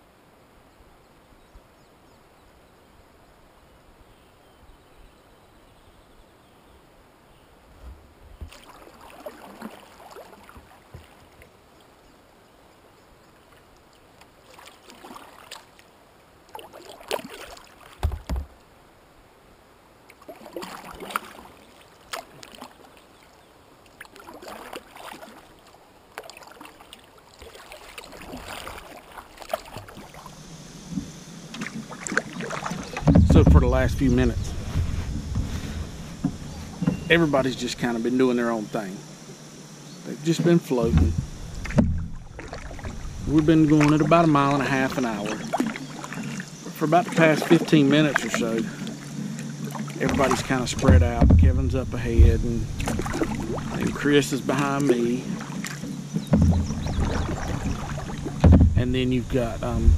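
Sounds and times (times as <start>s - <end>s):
paddle splashing in water: 7.7s - 12.1s, 13.4s - 18.7s, 20.0s - 59.9s
low thump: 32.9s - 37.3s, 40.8s - 44.0s, 50.1s - 54.0s, 56.2s - 59.9s.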